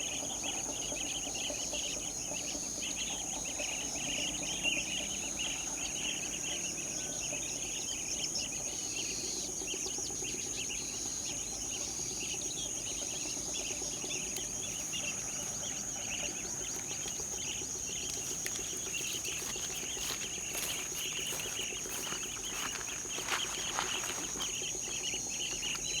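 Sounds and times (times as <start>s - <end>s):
small birds chirping: 0.0s - 26.0s
high-pitched insect drone: 10.4s - 26.0s.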